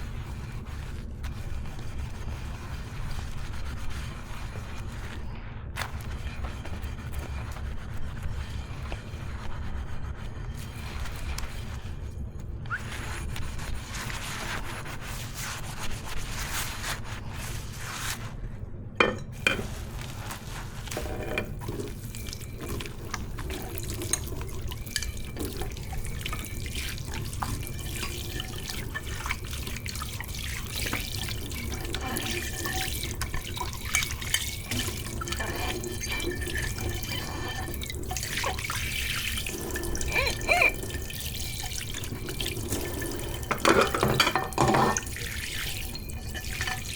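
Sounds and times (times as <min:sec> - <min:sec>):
dishes clinking: 0:19.0 - 0:19.8, 0:30.6 - 0:46.9
tap water splashing in sink: 0:21.1 - 0:46.9.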